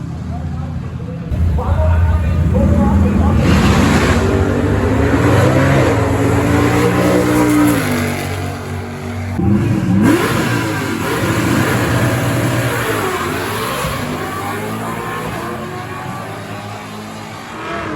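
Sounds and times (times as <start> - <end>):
car engine revving hard: 1.3 - 17.9.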